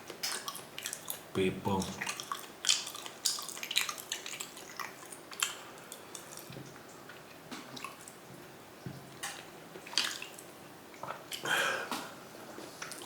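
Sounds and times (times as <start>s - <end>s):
chewing mouth clicks: 2.0s - 6.5s.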